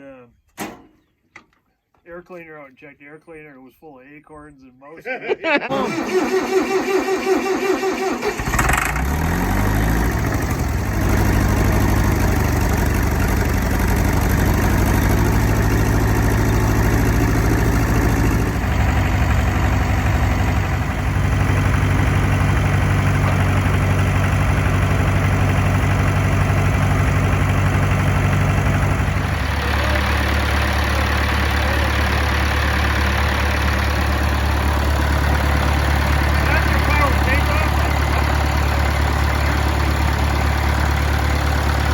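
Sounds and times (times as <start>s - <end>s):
tractor engine running: 5.7s - 41.9s
tractor starter cranking: 5.7s - 41.9s.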